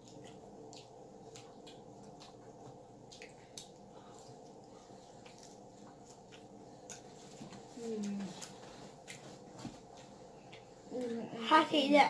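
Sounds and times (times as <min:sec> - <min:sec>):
wet chewing and mouth clicks: 0:00.0 - 0:11.1.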